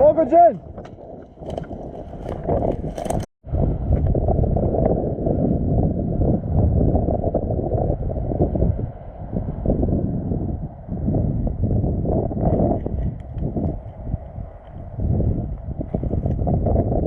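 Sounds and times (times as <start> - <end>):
wind rumbling on microphone: 0.0 - 17.0
rubbing on microphone: 0.7 - 3.3.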